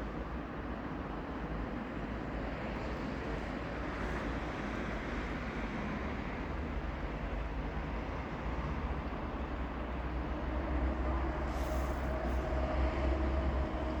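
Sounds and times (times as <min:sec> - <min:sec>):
train rumbling on track: 0:00.0 - 0:14.0
short hiss: 0:11.5 - 0:12.1.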